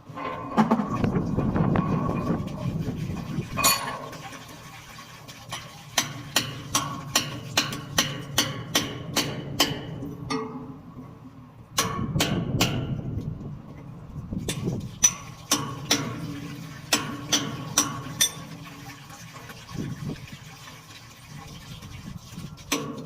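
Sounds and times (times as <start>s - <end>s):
rough scraping noise: 0.0s - 4.1s
sharp metallic knocks: 6.0s - 10.8s, 11.8s - 13.0s, 14.5s - 16.3s, 16.9s - 18.5s.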